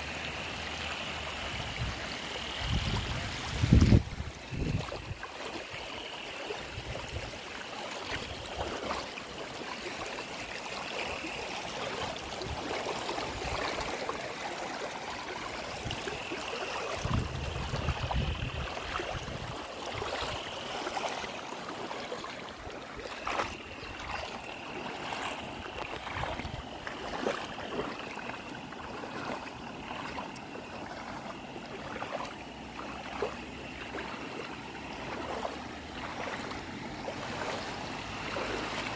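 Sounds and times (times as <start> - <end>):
river water rushing: 0.0 - 38.9
faint high steady tone: 9.6 - 36.4.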